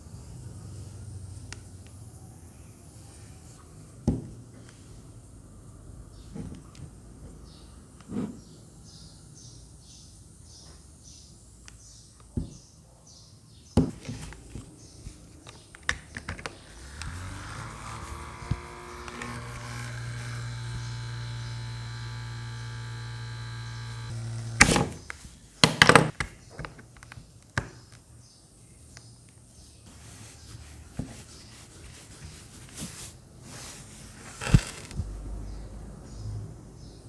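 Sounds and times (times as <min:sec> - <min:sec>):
small electric motor humming: 0:00.0 - 0:04.0, 0:16.6 - 0:25.1, 0:34.3 - 0:35.6.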